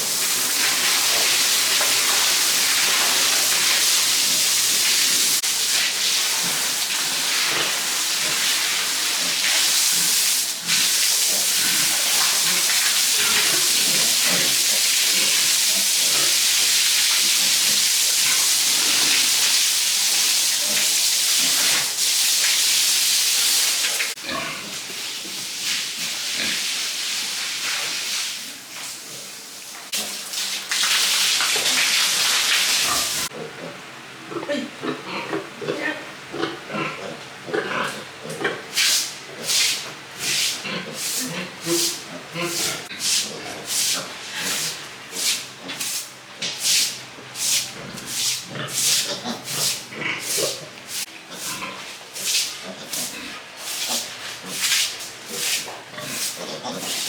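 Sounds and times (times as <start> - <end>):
pigs grunting: 24.2 - 24.8, 32.9 - 38.7, 39.3 - 44.8, 47.7 - 51.9, 55.3 - 57.0.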